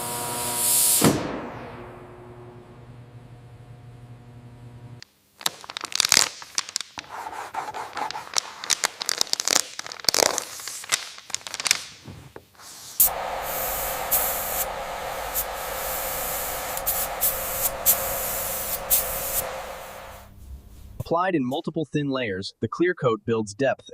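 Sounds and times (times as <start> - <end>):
crackling and clicking: 5.0 - 12.0
spray gun hissing: 12.6 - 20.3.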